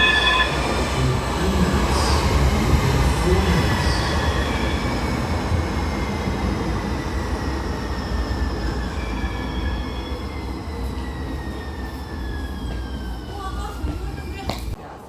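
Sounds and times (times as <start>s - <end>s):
high whining tones: 0.0s - 2.4s
light rail train rumble: 0.0s - 15.0s.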